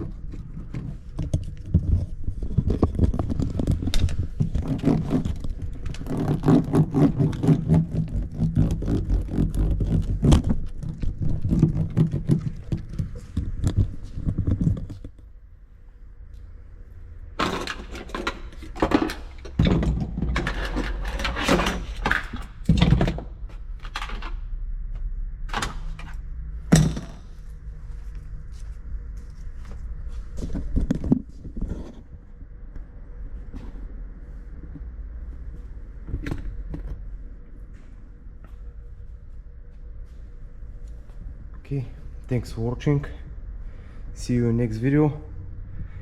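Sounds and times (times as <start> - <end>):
scraping and rubbing: 0.0 - 15.2.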